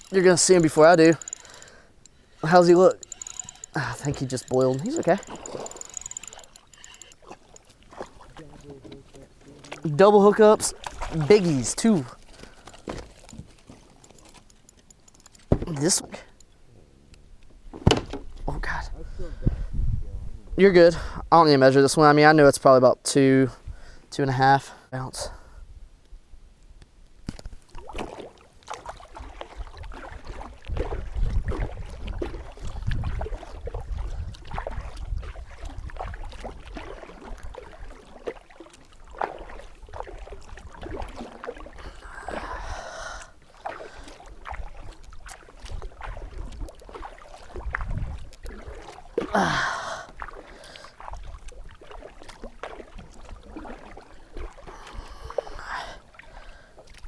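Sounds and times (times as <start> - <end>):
paddle splashes: 0.0 - 14.4, 27.3 - 57.0
paddle knocking on plastic hull: 15.5 - 15.8, 17.7 - 18.3
wind rumble on microphone: 18.2 - 21.3, 29.6 - 37.8, 47.5 - 48.7.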